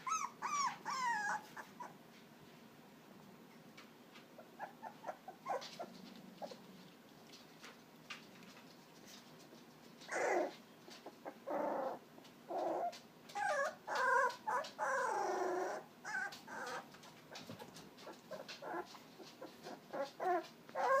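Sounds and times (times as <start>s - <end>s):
puppies whimpering: 0.0s - 2.0s, 4.4s - 6.7s, 10.0s - 10.6s, 11.2s - 21.0s.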